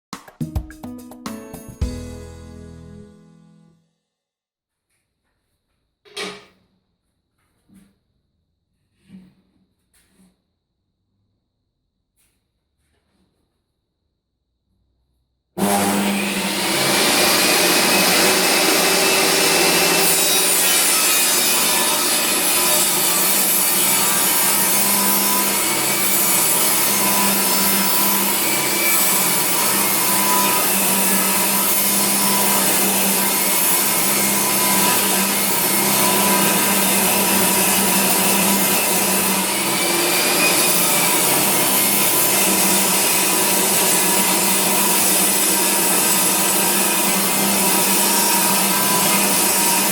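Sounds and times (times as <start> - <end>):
table saw ripping wood: 15.6 - 49.9.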